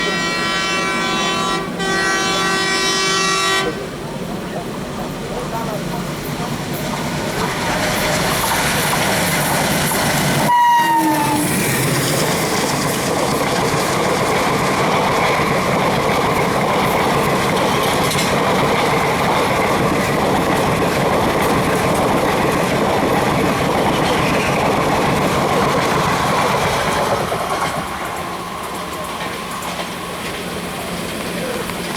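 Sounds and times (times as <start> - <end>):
locomotive horn blast: 0.0 - 3.9, 10.5 - 11.6
train wheels rumbling on rails: 0.0 - 31.9.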